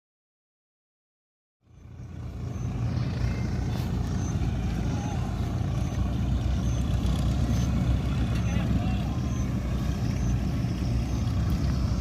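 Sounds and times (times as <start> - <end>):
diesel engines running under load: 1.6 - 12.0.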